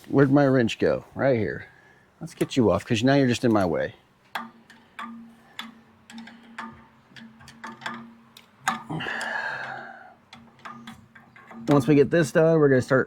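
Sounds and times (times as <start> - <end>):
wrench clicking metal: 4.3 - 12.1
scraping clatter: 4.4 - 12.3.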